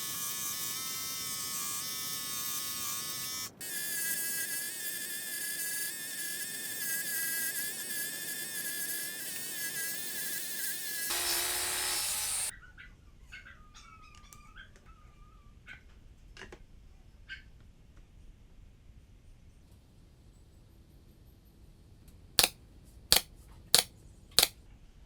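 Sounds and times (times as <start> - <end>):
electric power tool whirring: 0.0 - 12.5, 23.1 - 24.5.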